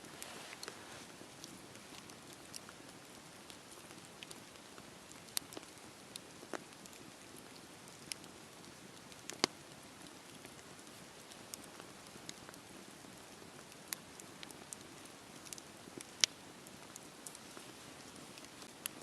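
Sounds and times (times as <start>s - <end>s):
campfire crackling: 0.0s - 19.0s
sharp pops of burning wood: 9.2s - 9.6s.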